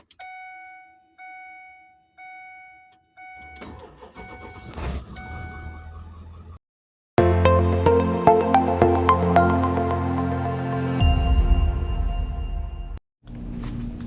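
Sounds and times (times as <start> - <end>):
dashboard warning chime dinging: 0.0 - 6.2
car engine cranking and starting: 3.4 - 6.6.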